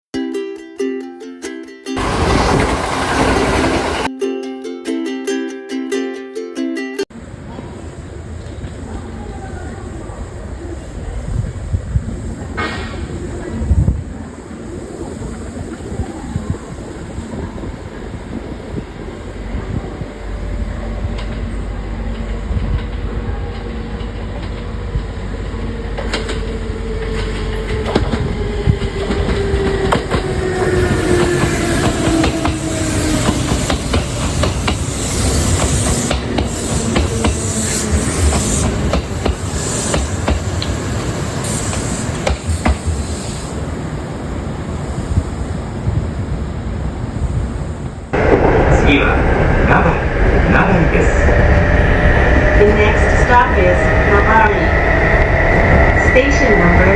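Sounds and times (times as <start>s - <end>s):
wheels clicking over rail joints: 2.0s - 4.1s, 21.0s - 43.4s
train motor whine: 23.9s - 44.3s
hiss: 30.1s - 46.1s.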